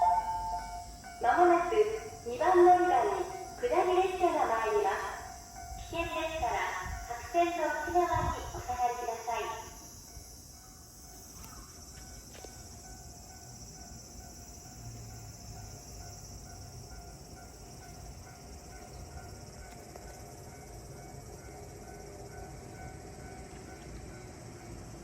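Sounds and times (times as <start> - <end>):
level crossing bell ringing: 0.0 - 3.6
high insect drone: 0.0 - 25.0.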